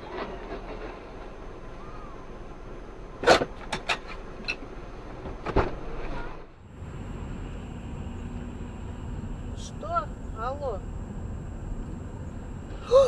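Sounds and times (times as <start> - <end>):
car road noise: 0.0 - 13.0
steady hum: 0.0 - 13.0.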